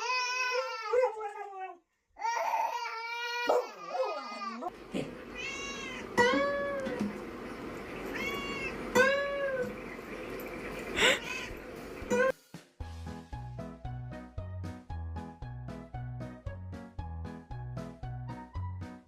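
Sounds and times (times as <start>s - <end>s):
cat meowing: 5.3s - 6.9s, 8.0s - 9.6s.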